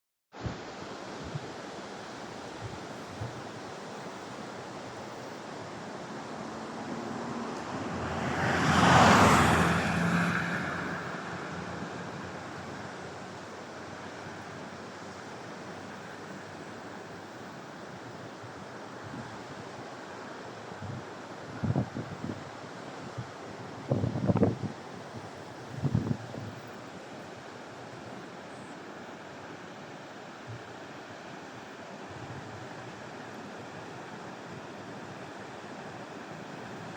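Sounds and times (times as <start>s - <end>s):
surf rushing: 2.0s - 17.1s
wind buffeting microphone: 20.8s - 22.4s, 23.0s - 26.7s.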